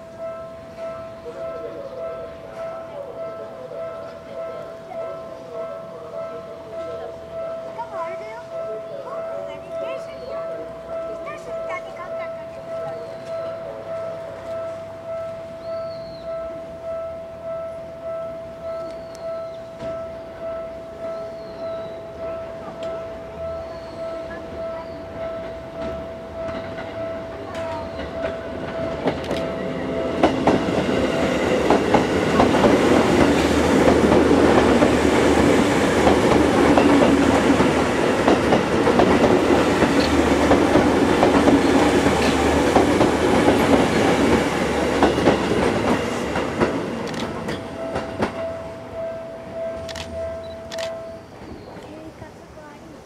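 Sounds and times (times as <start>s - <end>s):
steady high tone: 0.0s - 51.8s
train wheels clicking over rail joints: 25.3s - 48.7s.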